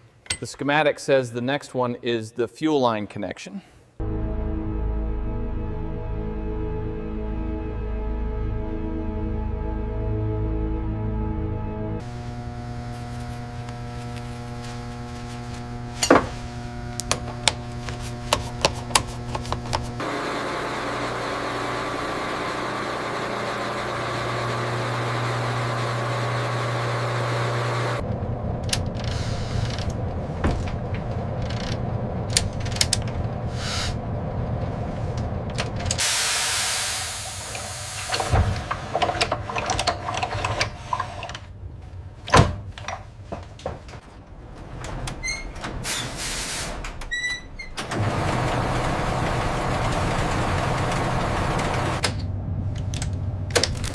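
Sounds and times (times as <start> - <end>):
steady low hum: 12.0 - 36.0, 48.7 - 53.9.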